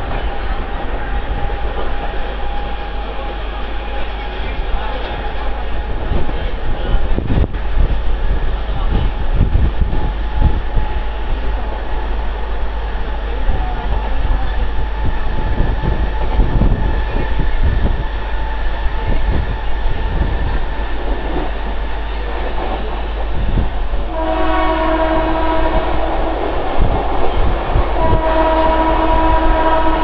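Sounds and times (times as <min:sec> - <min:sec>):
train wheels rumbling and clattering: 0:00.0 - 0:30.0
wind on microphone: 0:04.6 - 0:30.0
train horn blast: 0:24.1 - 0:26.9, 0:27.9 - 0:30.0.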